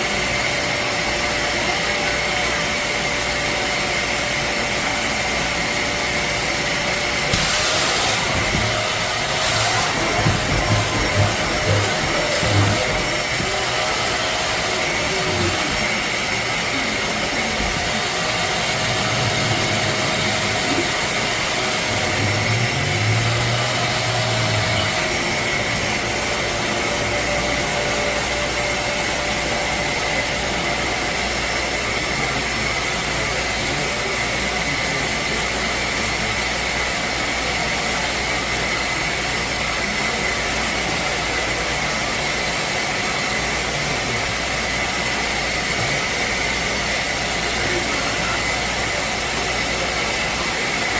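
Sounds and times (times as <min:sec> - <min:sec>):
high motor whine: 0:00.0 - 0:32.9
spot cleaner suction rush: 0:00.0 - 0:34.3.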